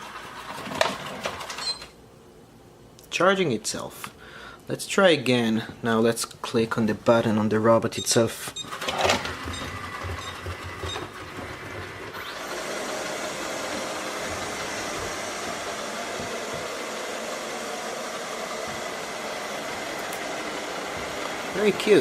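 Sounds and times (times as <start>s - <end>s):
robot vacuum whirring: 8.8s - 22.0s.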